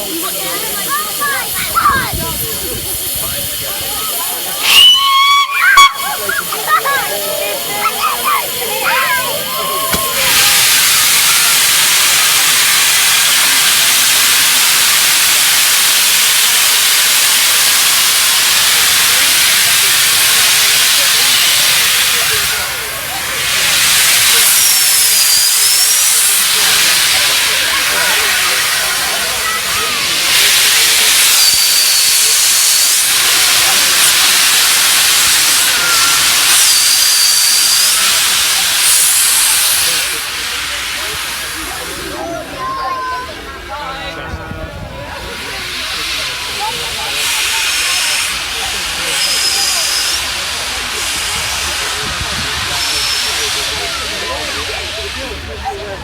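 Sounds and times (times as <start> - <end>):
steam locomotive blowing off steam: 0.0 - 56.0
thin high whistling tone: 4.5 - 7.0, 24.3 - 26.8, 31.3 - 33.1, 35.6 - 40.0, 49.0 - 50.3.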